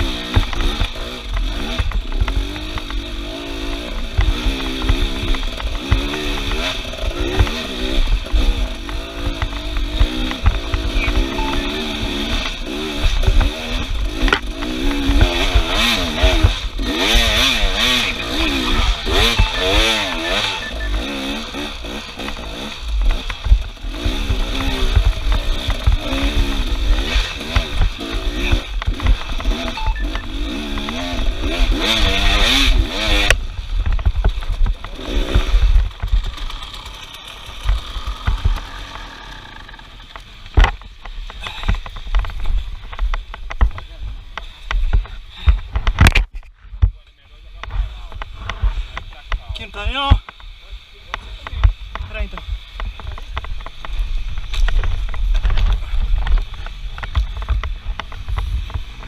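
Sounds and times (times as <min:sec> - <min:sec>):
engine revving up and down: 0:00.0 - 0:42.2
clicks: 0:28.5 - 0:31.0.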